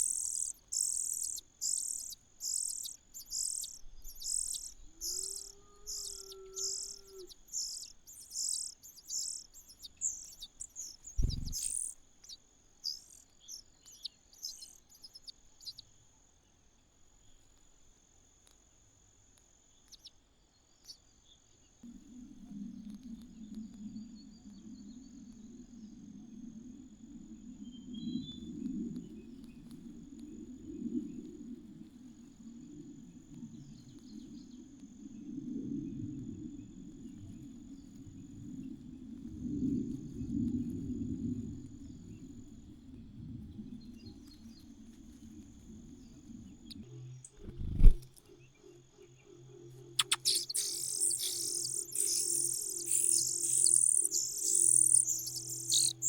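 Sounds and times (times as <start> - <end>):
high insect drone: 0.0 - 15.8, 43.7 - 56.0
nestlings chirping: 0.0 - 15.8, 50.0 - 56.0.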